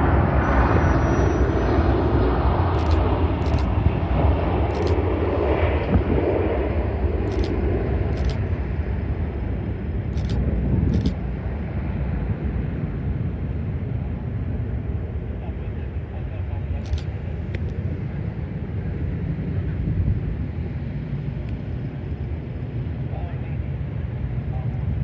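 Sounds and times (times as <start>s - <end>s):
jet engines roaring: 0.0s - 25.0s
faint short clicks: 2.8s - 3.7s, 4.7s - 5.0s, 7.3s - 8.4s, 10.2s - 11.2s, 16.8s - 17.8s.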